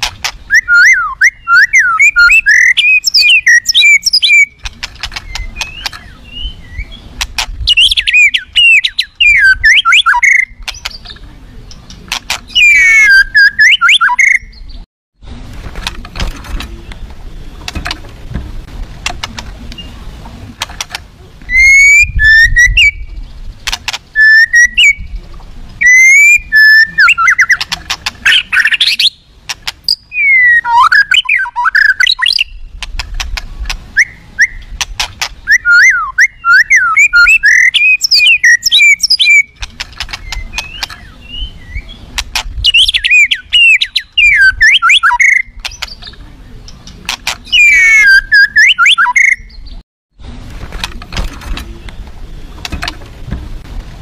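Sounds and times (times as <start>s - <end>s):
songbird singing whistles and trills: 0.5s - 14.9s, 21.5s - 23.2s, 24.2s - 25.2s, 25.8s - 32.7s, 34.0s - 34.8s, 35.4s - 46.8s, 47.4s - 49.8s.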